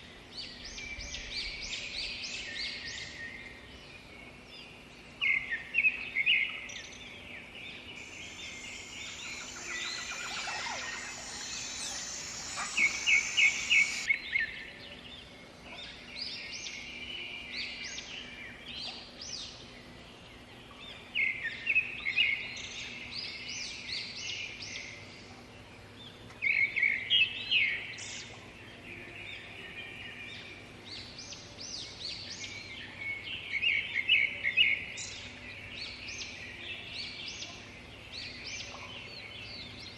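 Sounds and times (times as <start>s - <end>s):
bird chattering loudly: 8.0s - 14.1s
birds singing and calling: 8.0s - 14.1s
high steady buzz: 8.0s - 14.1s.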